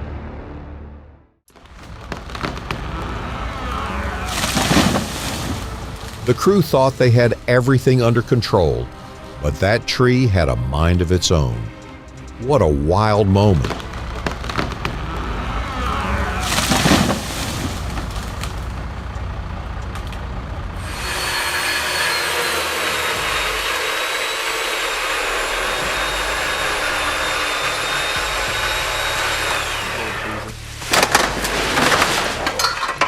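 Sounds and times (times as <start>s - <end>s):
motor running steadily: 13.8s - 30.7s.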